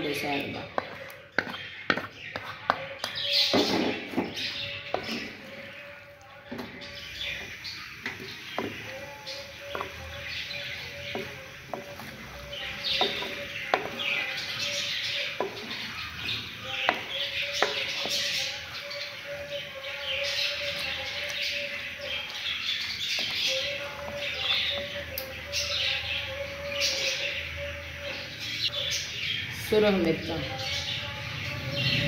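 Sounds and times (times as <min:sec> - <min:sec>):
wooden spoon knocking pot: 0:00.3 - 0:05.4, 0:06.5 - 0:15.9, 0:16.7 - 0:18.3
food sizzling in a pot: 0:07.0 - 0:19.3.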